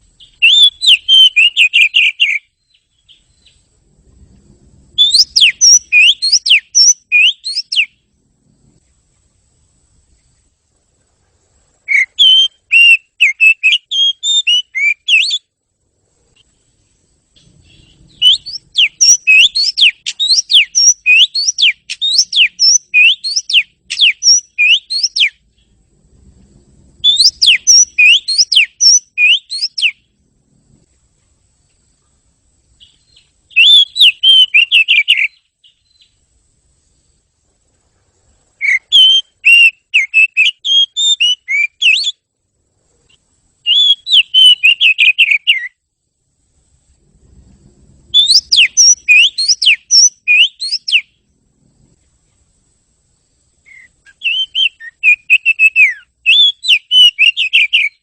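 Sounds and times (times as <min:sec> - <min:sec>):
bird singing whistled notes: 0:00.2 - 0:03.7, 0:04.8 - 0:08.1, 0:11.8 - 0:15.5, 0:16.4 - 0:25.8, 0:26.9 - 0:30.2, 0:32.8 - 0:36.2, 0:38.6 - 0:42.3, 0:43.6 - 0:45.9, 0:48.1 - 0:51.3, 0:53.5 - 0:58.0.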